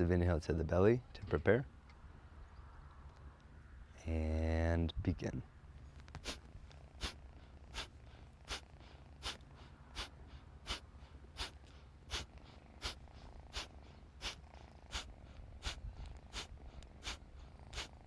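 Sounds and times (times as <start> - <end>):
steady low hum: 5.4 - 18.0
forceful nasal exhalations: 6.2 - 18.0.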